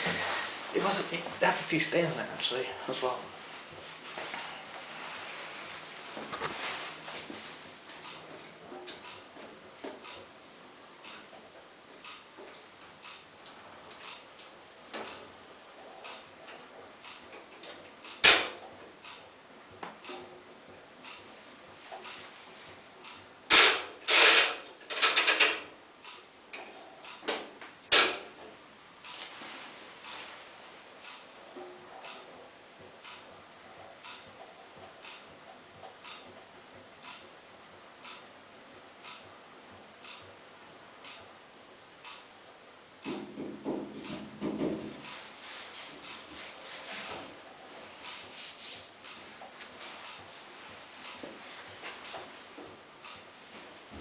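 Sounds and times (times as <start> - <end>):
washing machine drum swishing: 3.0 - 8.5, 43.2 - 54.0
washing machine drum turning: 8.0 - 21.2, 26.5 - 28.6, 43.0 - 54.0.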